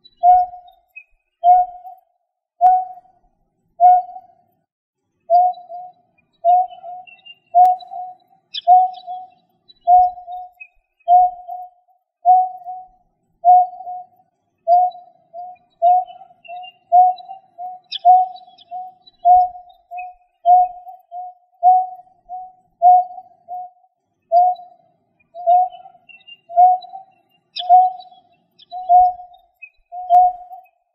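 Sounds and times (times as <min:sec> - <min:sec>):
faint high chirps: 0:00.0 - 0:04.6, 0:05.3 - 0:30.9
bird cooing hoots: 0:00.2 - 0:00.7, 0:03.8 - 0:04.2, 0:05.3 - 0:09.3, 0:09.9 - 0:10.5, 0:11.1 - 0:11.6, 0:12.3 - 0:12.9, 0:13.5 - 0:14.1, 0:14.7 - 0:24.7, 0:25.4 - 0:29.3.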